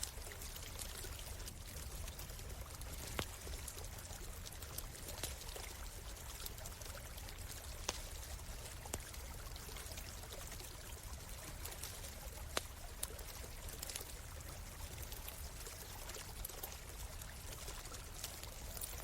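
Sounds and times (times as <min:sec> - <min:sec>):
campfire crackling pops: 0:00.0 - 0:19.0
stream of water running: 0:00.0 - 0:19.0.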